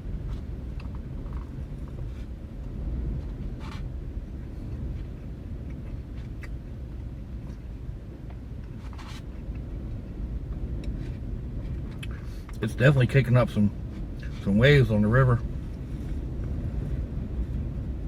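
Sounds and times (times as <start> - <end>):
wind rumbling: 0.0 - 18.0.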